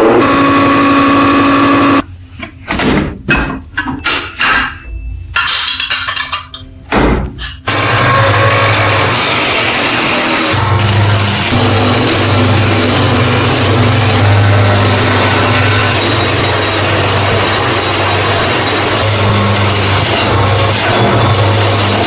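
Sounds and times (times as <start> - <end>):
electric power tool running: 0.0 - 2.0, 7.7 - 22.0.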